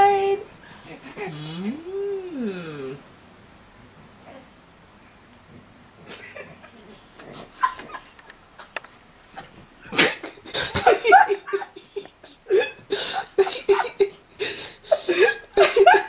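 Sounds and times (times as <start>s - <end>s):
breathy laughter: 6.1s - 8.2s, 10.1s - 16.0s.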